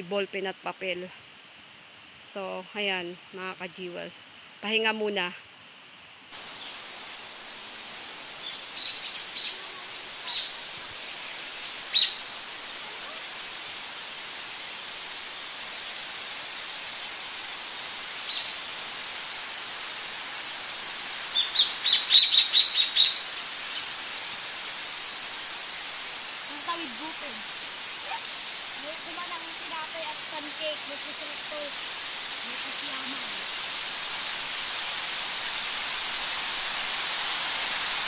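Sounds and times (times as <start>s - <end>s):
steady background hiss: 0.0s - 38.0s
birds chirping: 8.3s - 13.6s, 21.3s - 24.2s, 26.5s - 31.6s.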